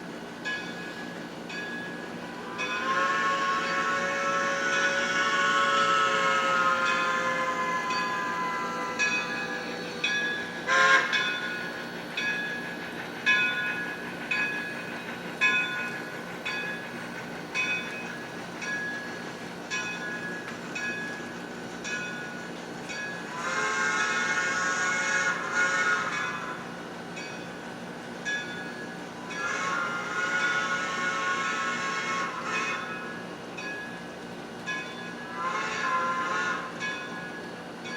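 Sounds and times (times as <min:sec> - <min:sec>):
model locomotive bell ringing: 0:00.4 - 0:37.9
steam whistle blast: 0:02.2 - 0:11.9, 0:23.3 - 0:26.8, 0:29.2 - 0:33.2, 0:35.2 - 0:36.8.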